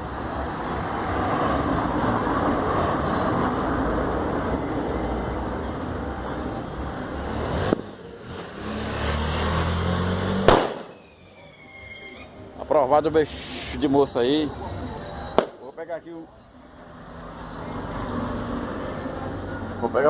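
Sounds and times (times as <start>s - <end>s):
firework crack: 10.3s - 12.2s, 15.3s - 15.7s
firework bang: 10.4s - 11.1s, 15.4s - 15.6s
firework fizzing hiss: 10.4s - 12.2s, 13.2s - 13.9s.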